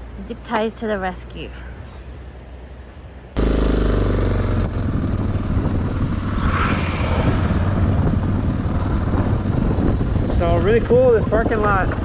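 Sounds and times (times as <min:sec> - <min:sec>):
vehicle engine droning: 0:03.4 - 0:10.7.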